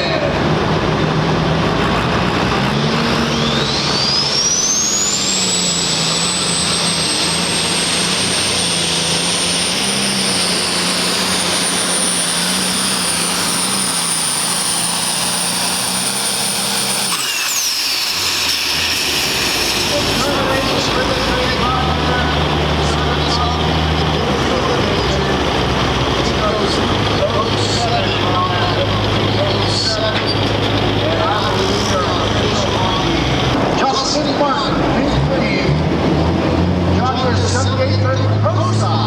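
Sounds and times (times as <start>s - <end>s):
tractor engine at full throttle: 0.0s - 39.0s
turbo whistle: 3.3s - 7.0s.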